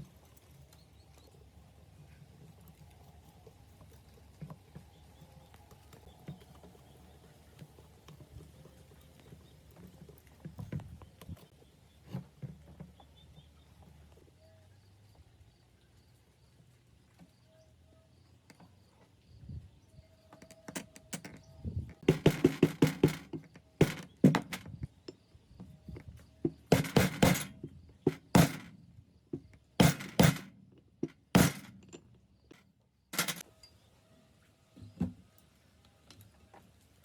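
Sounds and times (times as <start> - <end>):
metal parts knocking and clattering: 20.4 - 25.2, 25.9 - 28.8, 29.4 - 32.6, 33.2 - 33.4.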